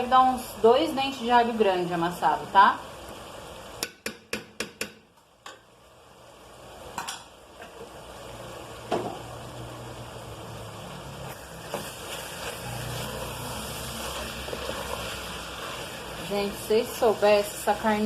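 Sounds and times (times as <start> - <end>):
meat sizzling in a frying pan: 0.0 - 4.0, 5.9 - 18.0
spoon knocking against pan: 3.8 - 5.6
spoon stirring: 11.7 - 16.3.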